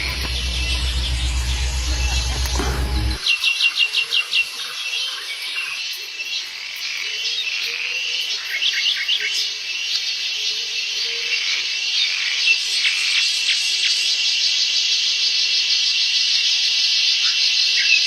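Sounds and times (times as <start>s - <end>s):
high insect drone: 0.0s - 3.2s.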